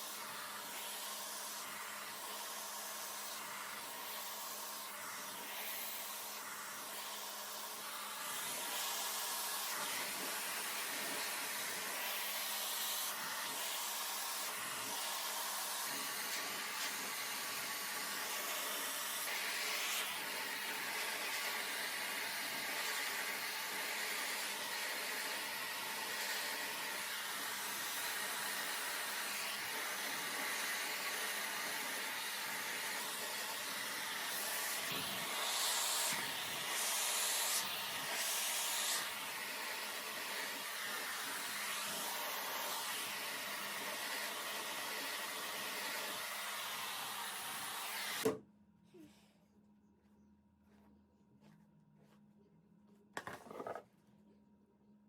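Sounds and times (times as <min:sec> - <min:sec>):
hair dryer blowing air: 0:00.0 - 0:48.4.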